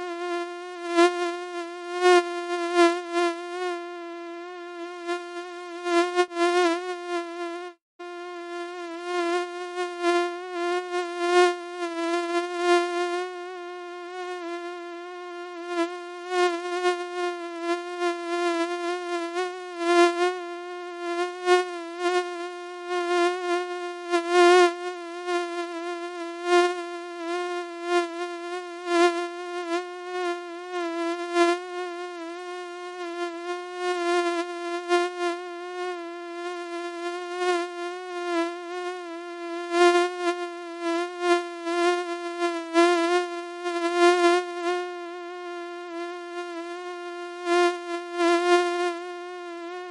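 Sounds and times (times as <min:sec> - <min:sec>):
mosquito buzzing: 0:00.0 - 0:49.9.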